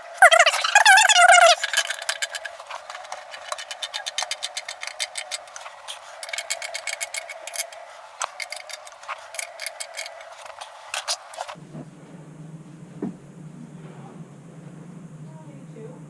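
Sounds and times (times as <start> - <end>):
rapid mechanical clicking: 0.0 - 11.6.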